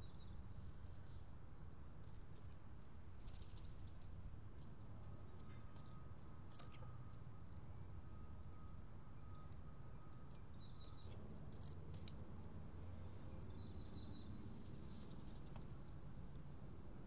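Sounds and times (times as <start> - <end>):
small birds chirping: 0.0 - 2.5, 3.2 - 4.1, 9.2 - 12.2, 12.8 - 16.0.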